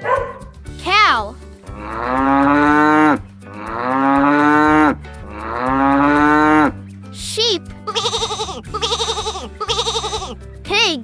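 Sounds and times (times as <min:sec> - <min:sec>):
cow mooing: 0:01.7 - 0:06.8.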